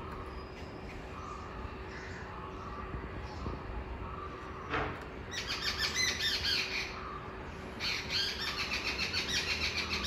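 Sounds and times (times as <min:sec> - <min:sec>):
bird squawking and chirping: 0:05.3 - 0:10.0.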